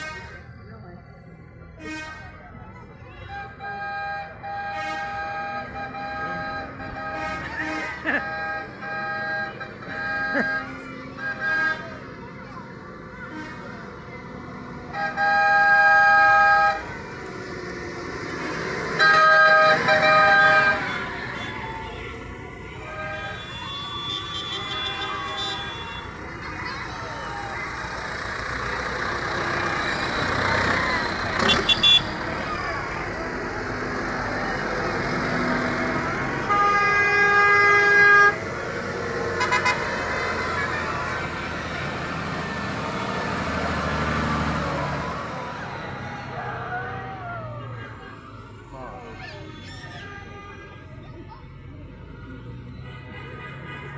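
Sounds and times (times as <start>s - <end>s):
rumble of passing engines: 0.0s - 53.9s
vehicle horn blasts: 3.3s - 12.0s, 14.9s - 16.8s, 19.0s - 26.2s, 31.4s - 32.2s, 36.4s - 38.4s, 39.3s - 40.5s.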